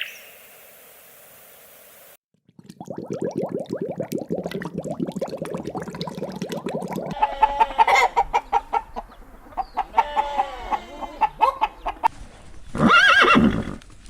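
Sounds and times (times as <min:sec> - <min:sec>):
horse whinnying: 0:12.8 - 0:13.8.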